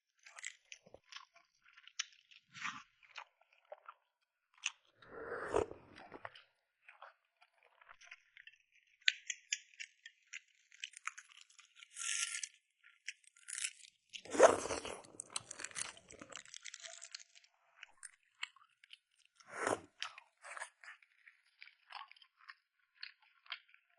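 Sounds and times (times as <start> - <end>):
chewing and crunching: 0.1 - 23.9
wet mouth clicks: 5.0 - 6.2.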